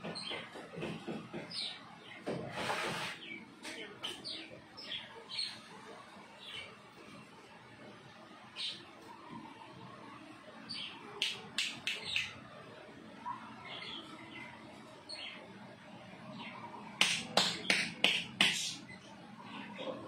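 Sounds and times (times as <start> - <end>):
small birds chirping: 0.0 - 2.3, 3.0 - 7.0, 10.6 - 12.5, 13.2 - 19.9.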